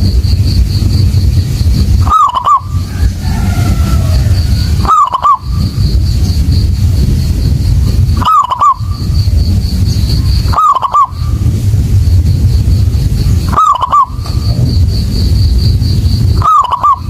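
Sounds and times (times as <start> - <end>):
low rumble: 0.0 - 17.0
dove cooing: 2.0 - 5.7, 8.2 - 9.0, 10.3 - 11.3, 13.5 - 14.6, 16.4 - 17.0.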